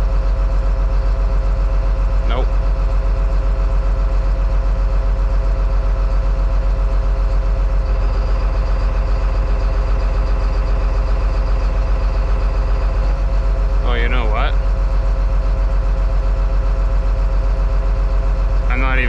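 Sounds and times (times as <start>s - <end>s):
diesel engine idling unevenly: 0.0s - 19.0s
faint high whine: 13.8s - 14.6s, 18.7s - 19.0s.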